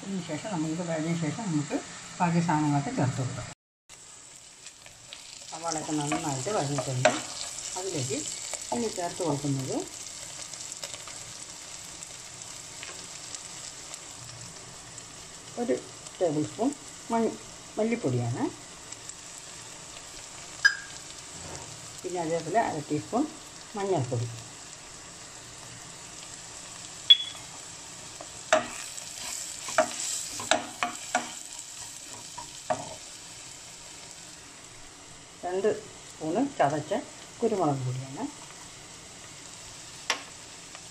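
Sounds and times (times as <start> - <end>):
onions sizzling in oil: 0.0 - 40.9
spatula stirring in pan: 4.3 - 9.2, 27.5 - 33.2
spatula scraping and knocking a pan: 28.5 - 33.0.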